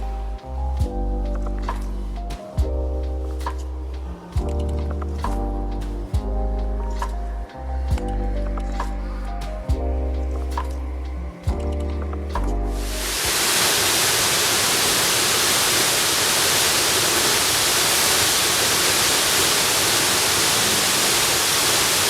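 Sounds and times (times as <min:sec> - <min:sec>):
waterfall rushing: 0:12.8 - 0:22.0.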